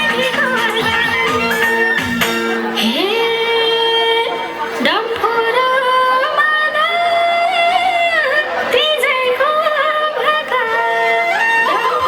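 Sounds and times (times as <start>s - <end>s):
instrumental accompaniment: 0.0s - 5.5s.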